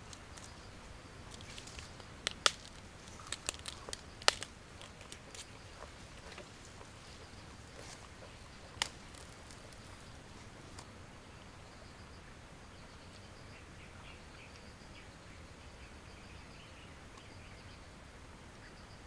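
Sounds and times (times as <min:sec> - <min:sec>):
grass being bitten and chewed: 0:01.3 - 0:10.9.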